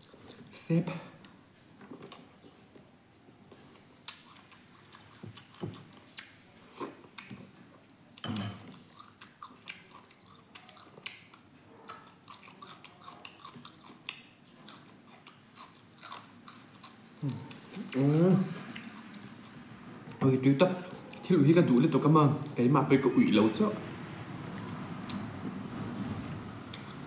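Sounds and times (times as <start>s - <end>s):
person chewing and biting food: 8.7s - 18.1s
gnawing meat off a bone: 9.2s - 17.8s.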